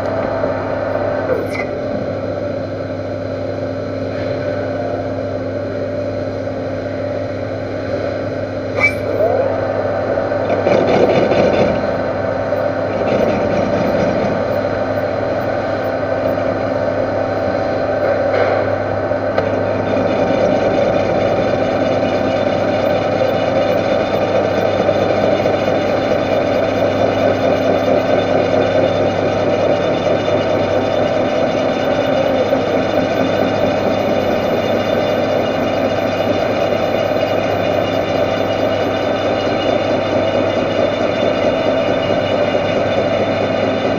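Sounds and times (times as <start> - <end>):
lathe motor hum: 0.0 - 43.9
metal cutting noise: 8.7 - 18.8.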